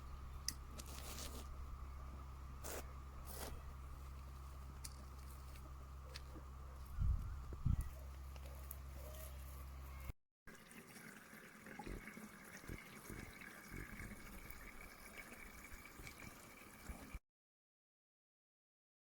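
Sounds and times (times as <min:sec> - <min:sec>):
faint trickling water: 0:10.5 - 0:17.2.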